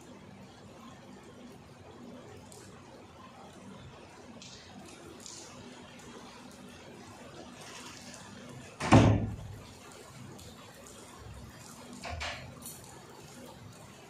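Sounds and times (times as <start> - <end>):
faint steady rain: 0.0 - 14.0.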